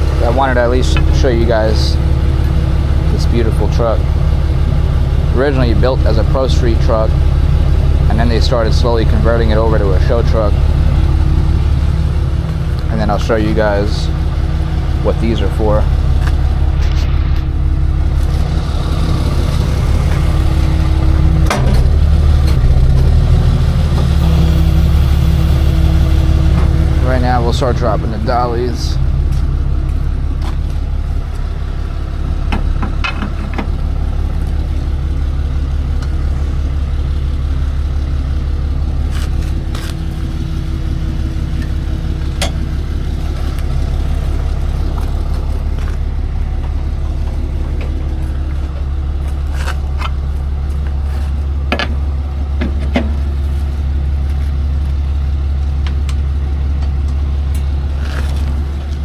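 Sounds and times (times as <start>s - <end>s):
truck engine idling: 0.0s - 59.0s
metal clanks and knocks: 21.0s - 22.7s, 32.5s - 33.8s, 51.7s - 52.0s.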